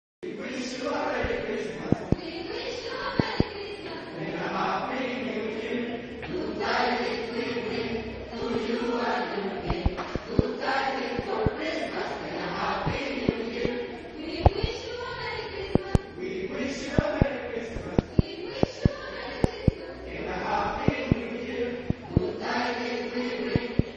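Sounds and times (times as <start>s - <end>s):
choir singing: 0.2s - 23.9s
sharp clicks: 1.2s - 2.2s, 9.6s - 10.6s, 11.2s - 11.7s, 12.8s - 13.8s, 14.4s - 14.8s, 15.7s - 16.1s, 16.9s - 19.8s, 20.6s - 21.2s.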